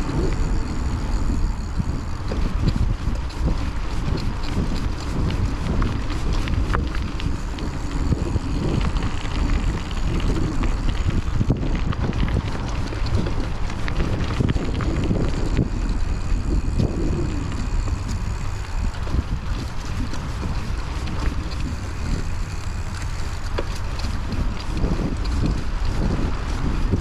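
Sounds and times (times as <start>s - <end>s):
bike rattles and clicks: 0.0s - 27.0s
tyres rolling over dirt: 0.0s - 27.0s
wind buffeting microphone: 0.0s - 27.0s.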